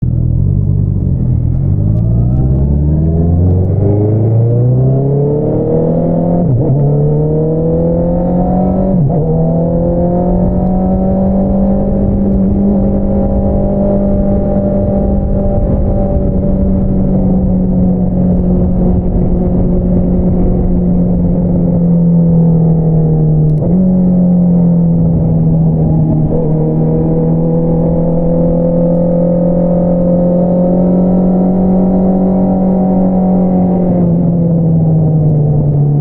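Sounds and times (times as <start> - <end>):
motorcycle engine running: 0.0 - 4.8.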